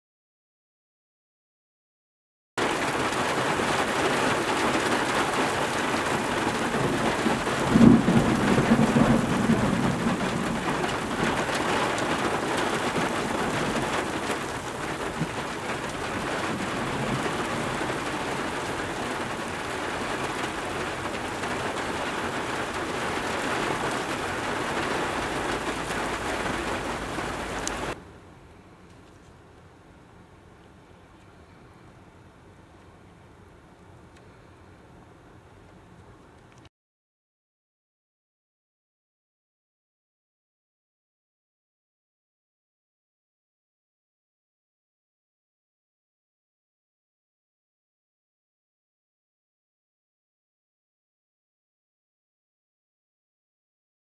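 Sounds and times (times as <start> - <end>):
heavy rain pouring: 2.6 - 28.0
thunder clap rumbling: 2.6 - 28.0.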